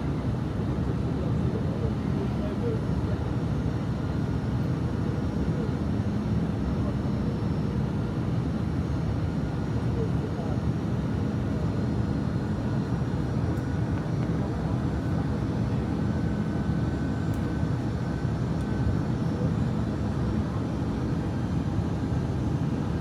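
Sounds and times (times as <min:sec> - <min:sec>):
aircraft cabin engine drone: 0:00.0 - 0:23.0.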